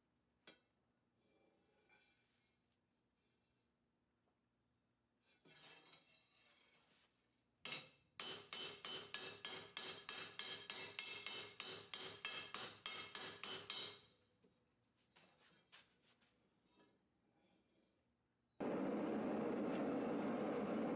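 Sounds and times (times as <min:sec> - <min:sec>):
hammer striking blade on anvil: 0:07.7 - 0:14.0.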